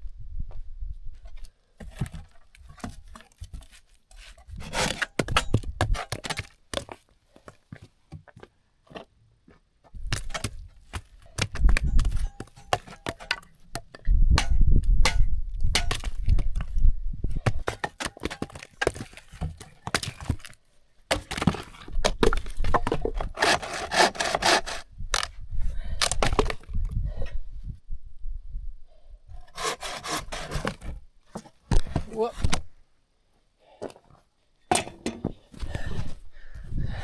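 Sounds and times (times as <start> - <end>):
saw rasping: 4.6 - 5.4, 23.4 - 24.8, 29.5 - 30.8
wood cracking and snapping: 10.1 - 13.8, 17.5 - 25.3, 26.0 - 26.6.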